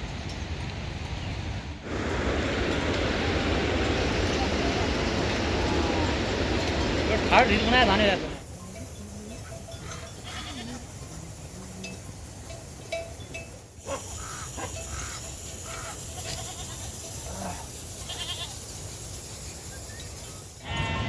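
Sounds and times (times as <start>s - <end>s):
goats bleating: 9.4s - 11.8s, 14.2s - 18.6s.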